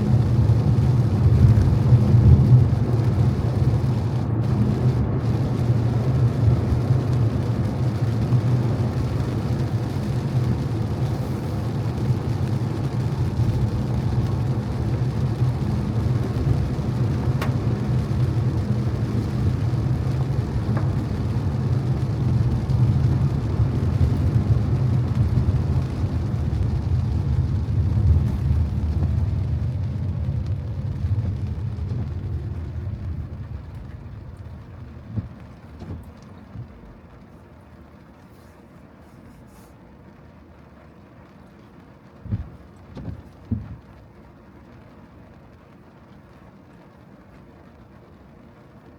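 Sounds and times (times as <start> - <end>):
tyre hiss on wet road: 0.0 - 36.4, 38.1 - 40.0
car road rumble: 0.0 - 48.9.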